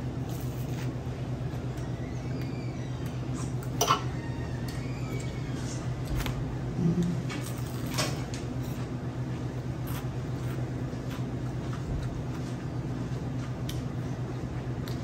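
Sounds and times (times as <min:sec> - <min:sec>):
chewing fried food: 0:07.0 - 0:15.0.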